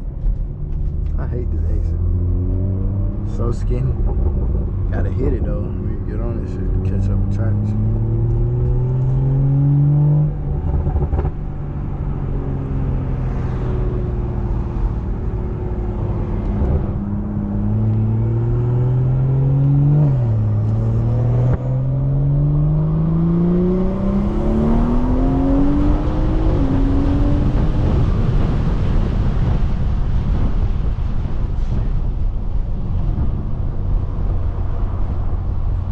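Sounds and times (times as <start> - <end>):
car engine accelerating hard: 0.2 - 35.9.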